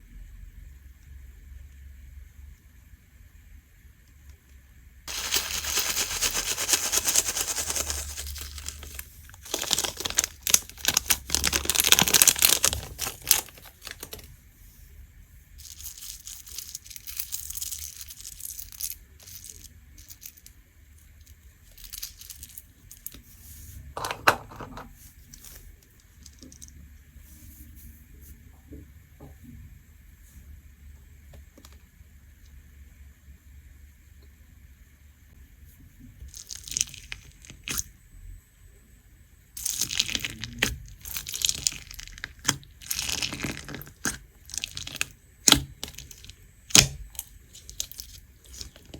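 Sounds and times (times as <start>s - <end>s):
slime crackling by hand: 5.1s - 14.2s, 39.6s - 48.9s
sharp slime pop: 46.7s - 47.0s.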